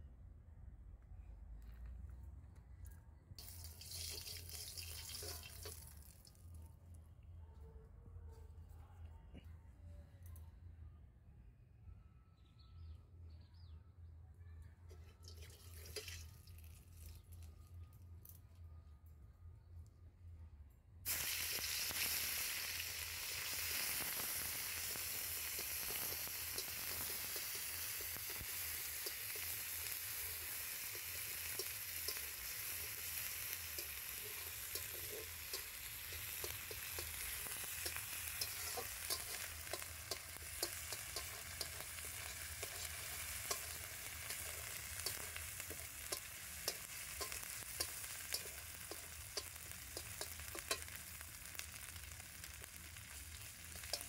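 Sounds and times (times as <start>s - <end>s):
onions sizzling in oil: 3.4s - 6.1s, 21.1s - 54.0s
metal spatula scraping wok: 25.2s - 51.0s.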